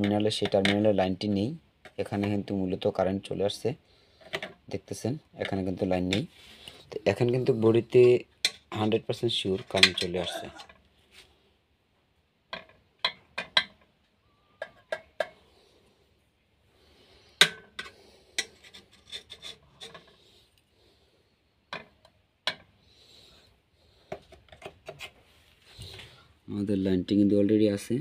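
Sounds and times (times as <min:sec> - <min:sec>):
screwdriver clicking and tapping metal: 0:12.5 - 0:13.8
light scraping: 0:17.8 - 0:20.6.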